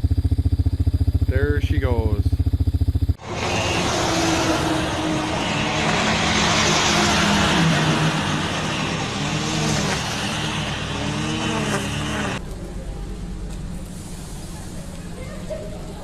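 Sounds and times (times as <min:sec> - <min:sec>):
vehicle engine running loudly: 0:00.0 - 0:13.6
dense rushing noise: 0:03.2 - 0:12.4.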